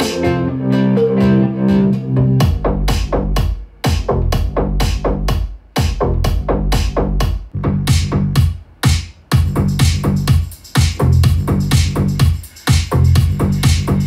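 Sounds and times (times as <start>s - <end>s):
electronic instrumental music: 0.0s - 5.0s.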